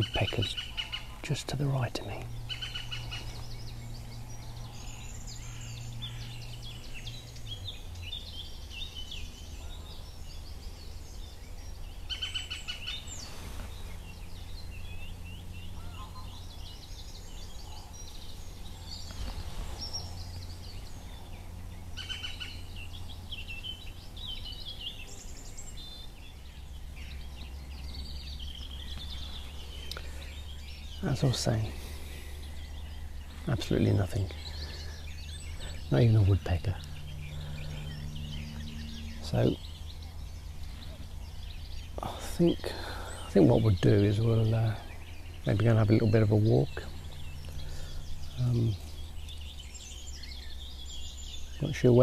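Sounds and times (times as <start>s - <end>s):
rapid high bird trill: 0.0s - 3.7s
low background rumble: 0.0s - 52.0s
songbirds chirping: 0.0s - 52.0s.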